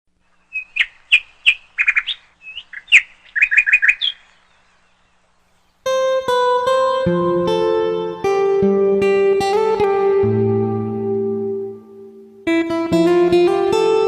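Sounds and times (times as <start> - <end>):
bird chirping: 0.2 - 6.0
plucked guitar music: 5.8 - 14.0.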